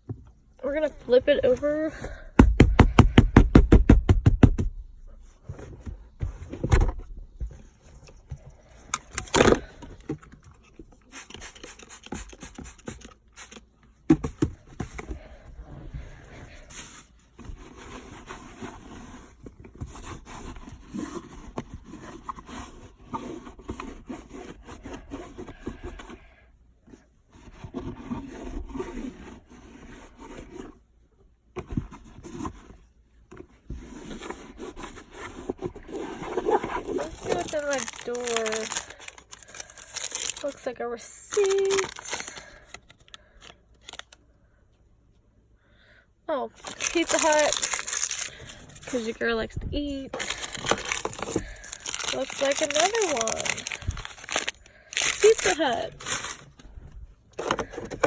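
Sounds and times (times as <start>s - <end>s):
scraping and rubbing: 31.8s - 40.7s, 46.6s - 58.0s.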